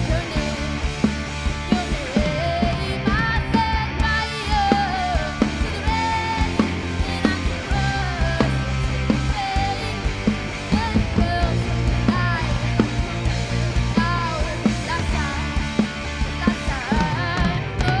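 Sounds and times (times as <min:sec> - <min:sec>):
bass notes: 0:00.0 - 0:18.0
drums beat: 0:00.0 - 0:18.0
rock band playing: 0:00.0 - 0:18.0.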